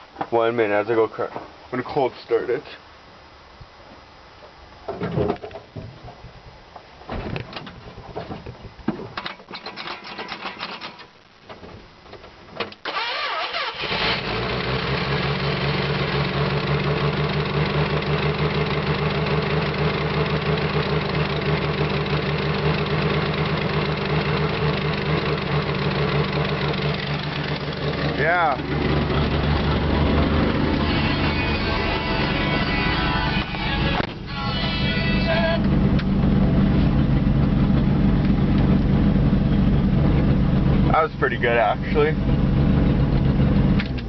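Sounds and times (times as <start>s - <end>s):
truck engine idling: 15.6s - 43.8s.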